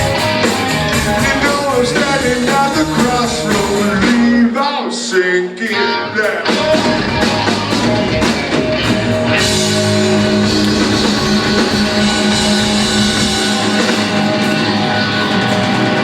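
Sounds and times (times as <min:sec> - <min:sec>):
electric guitar chord: 0:05.8 - 0:16.0
drum hits: 0:06.2 - 0:16.0.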